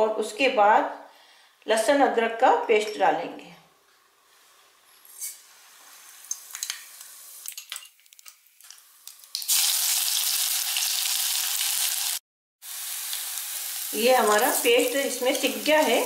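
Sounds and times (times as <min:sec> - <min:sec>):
seeds crackling in hot oil: 0:05.2 - 0:16.0
loud oil sizzle: 0:08.6 - 0:16.0.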